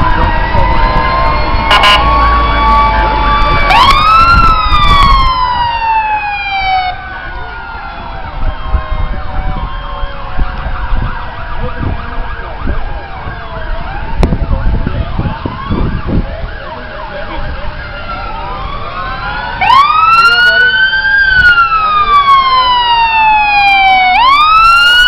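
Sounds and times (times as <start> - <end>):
fire truck sirens wailing: 0.0 - 25.0.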